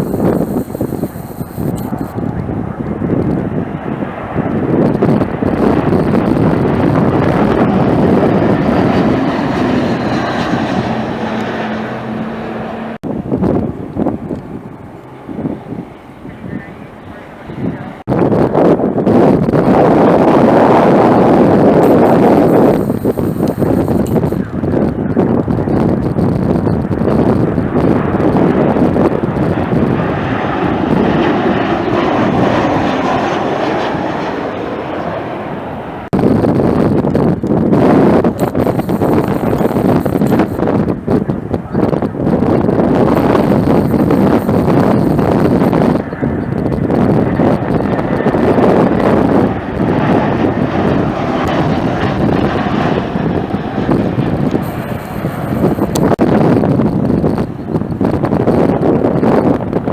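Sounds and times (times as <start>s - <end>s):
thin steady whine: 0.0s - 2.9s, 21.6s - 24.9s, 37.7s - 48.8s, 53.7s - 57.9s
jet engines roaring: 0.0s - 59.9s.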